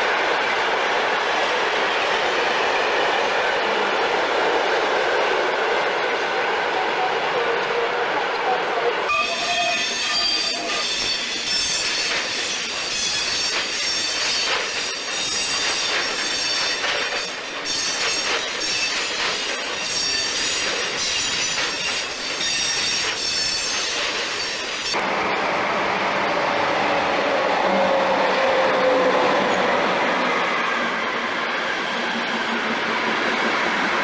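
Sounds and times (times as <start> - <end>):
passenger train pulling in: 0.0 - 34.0
freight wagon wheels squealing: 9.1 - 25.0.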